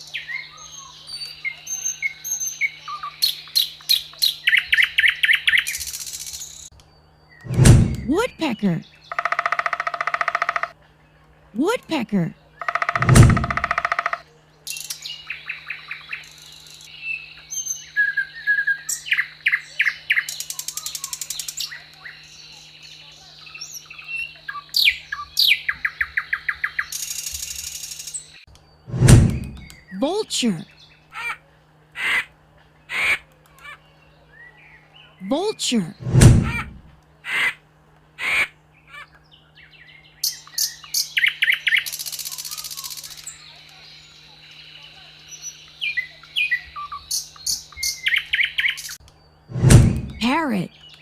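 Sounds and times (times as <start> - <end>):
woodpecker calling: 0.0 - 6.7, 8.0 - 10.8, 12.3 - 28.4, 39.8 - 49.0
small songbirds chirping: 0.0 - 11.3, 12.3 - 31.1, 38.7 - 51.0.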